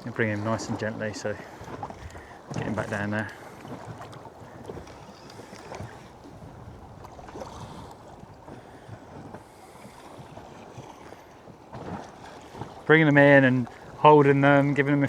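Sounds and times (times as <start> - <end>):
water lapping against boat: 0.0 - 15.0
wind noise on microphone: 5.8 - 9.4.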